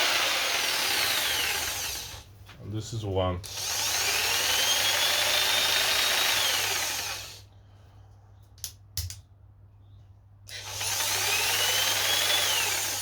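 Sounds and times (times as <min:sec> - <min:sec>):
jigsaw motor whine: 0:00.0 - 0:02.2, 0:03.5 - 0:07.4, 0:10.5 - 0:13.0.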